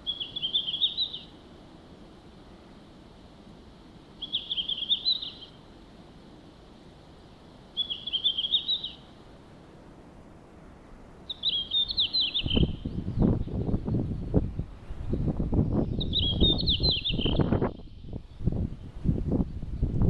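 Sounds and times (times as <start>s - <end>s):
bird singing high phrases: 0.0s - 1.4s, 4.2s - 5.6s, 7.8s - 9.1s, 11.3s - 14.4s, 15.0s - 18.6s.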